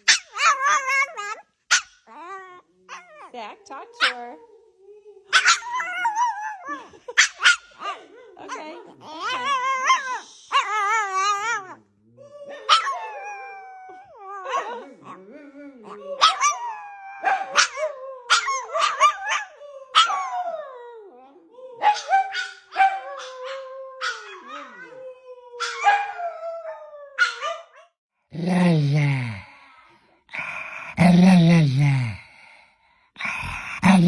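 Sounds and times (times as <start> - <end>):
dog barking: 0.0 - 0.9, 1.7 - 2.0, 4.0 - 4.4, 5.3 - 6.1, 7.1 - 8.8, 12.6 - 13.2, 14.4 - 14.9, 17.2 - 20.2, 21.8 - 24.5, 25.6 - 26.2, 27.2 - 27.9
dog howling: 0.0 - 8.0, 8.6 - 27.8.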